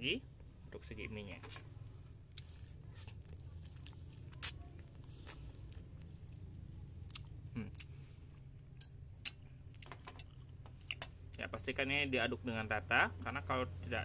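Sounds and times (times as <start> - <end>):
person chewing noodles: 1.9 - 11.4.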